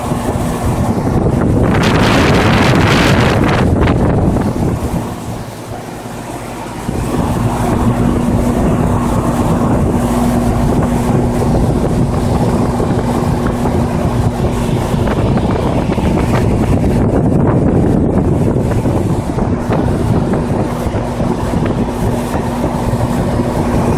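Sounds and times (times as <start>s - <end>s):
fan air rushing: 0.0s - 23.9s
heat pump compressor hum: 0.0s - 23.9s.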